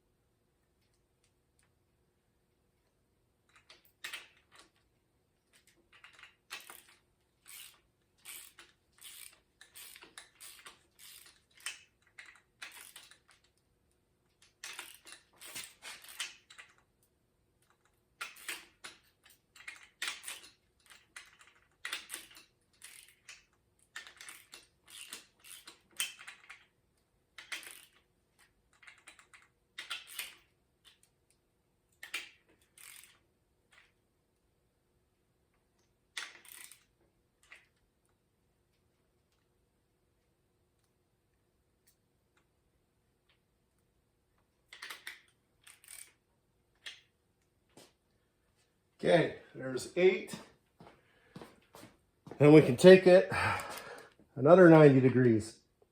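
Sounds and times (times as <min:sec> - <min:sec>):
hand ratchet clicking: 0:05.5 - 0:13.6, 0:14.4 - 0:16.8, 0:17.6 - 0:26.7, 0:27.4 - 0:28.0, 0:28.7 - 0:31.0, 0:32.0 - 0:33.2, 0:36.2 - 0:37.6, 0:44.7 - 0:46.2.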